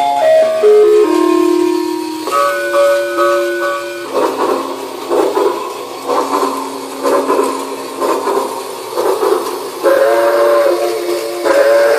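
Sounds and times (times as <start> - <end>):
toy train chugging sound effect: 0.0 - 11.9
steam whistle toot: 9.8 - 11.9.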